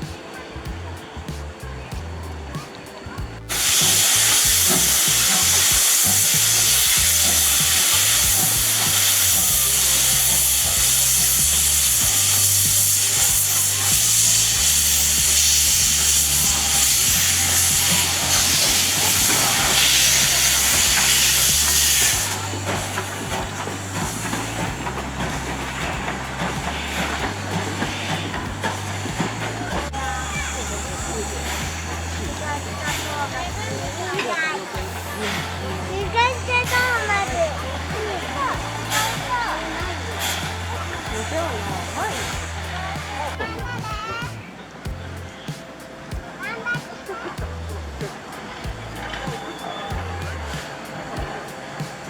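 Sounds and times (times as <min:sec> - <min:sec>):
steam locomotive hissing: 0:00.0 - 0:52.0.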